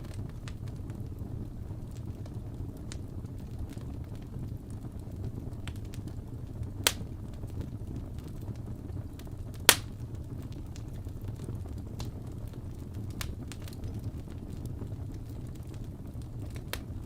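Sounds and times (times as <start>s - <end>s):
wood fire crackling: 0.0s - 17.0s
loud sharp pops: 6.8s - 7.0s, 9.7s - 10.0s.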